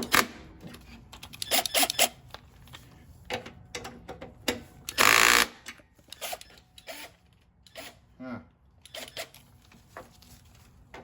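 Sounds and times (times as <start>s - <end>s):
tool and metal parts clicking: 0.0s - 8.0s, 8.8s - 9.5s.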